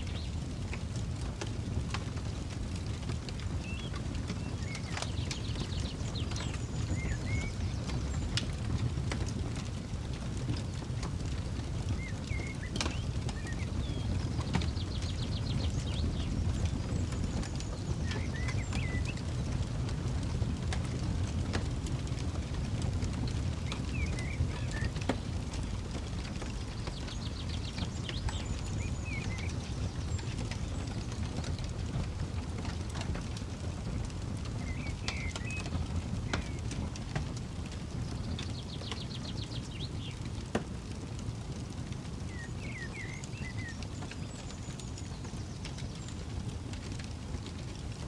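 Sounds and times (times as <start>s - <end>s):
campfire crackling and popping: 0.0s - 48.0s
bird singing with trill: 3.6s - 8.4s, 11.9s - 19.5s, 23.7s - 25.2s, 26.6s - 31.6s, 34.6s - 36.8s, 38.0s - 40.3s, 42.3s - 46.2s.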